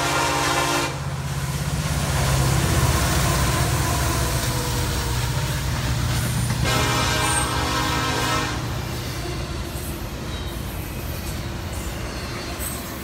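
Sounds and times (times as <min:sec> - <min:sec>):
locomotive horn: 0:00.0 - 0:01.2, 0:06.5 - 0:09.4
diesel engines pulsing rumble: 0:00.0 - 0:12.0.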